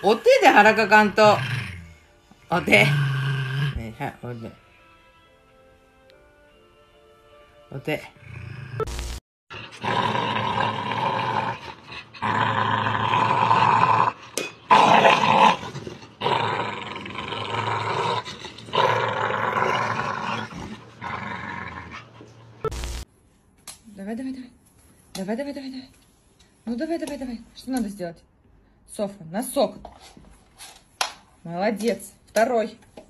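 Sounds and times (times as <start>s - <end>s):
dogs growling: 0.0s - 4.0s, 9.5s - 22.6s.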